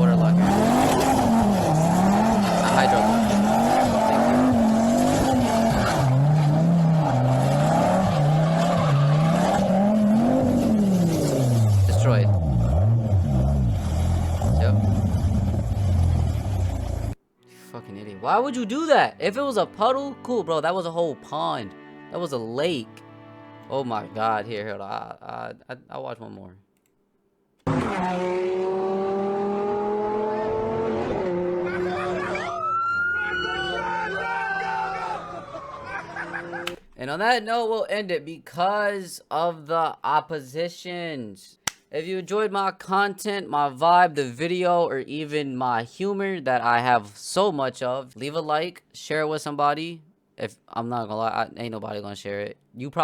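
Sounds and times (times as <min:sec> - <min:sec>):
car engine revving: 0:00.0 - 0:17.2, 0:27.7 - 0:32.2.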